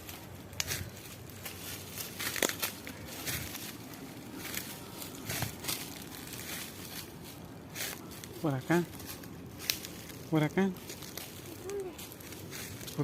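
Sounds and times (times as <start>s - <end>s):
footsteps crunching dry leaves: 0.0s - 13.0s
twig snapping: 2.2s - 2.9s, 9.6s - 9.9s.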